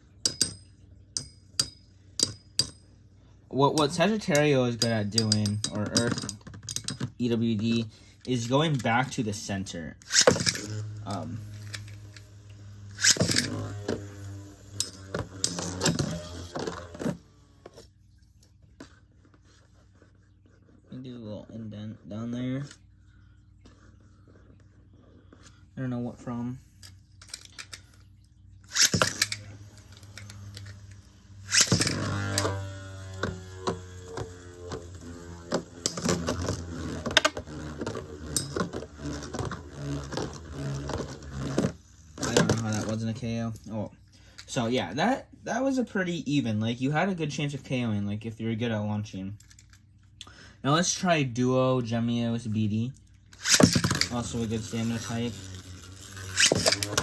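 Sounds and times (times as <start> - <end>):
metallic clicks and knocks: 0.2 - 2.9, 3.8 - 7.2
spinning tops whirring: 3.6 - 17.9, 28.6 - 43.7, 53.3 - 57.0.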